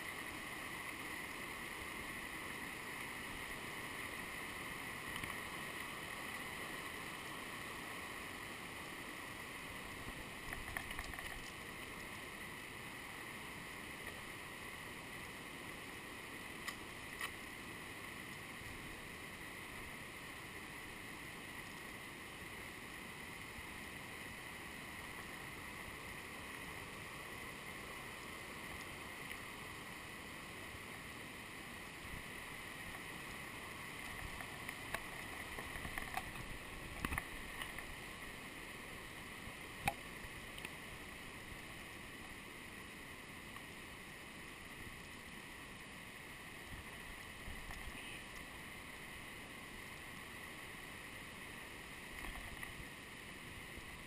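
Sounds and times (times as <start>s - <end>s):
mountain stream rushing over rocks: 0.0s - 54.0s.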